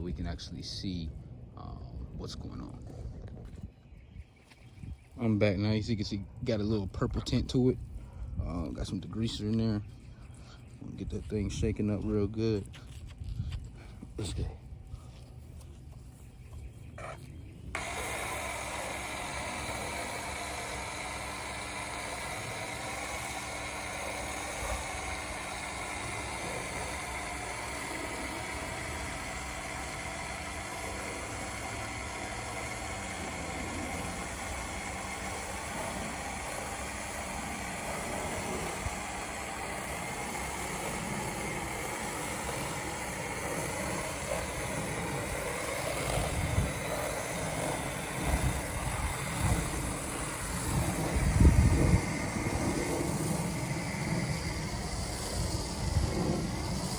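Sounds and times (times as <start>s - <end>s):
pressure washer spraying: 17.8s - 56.9s.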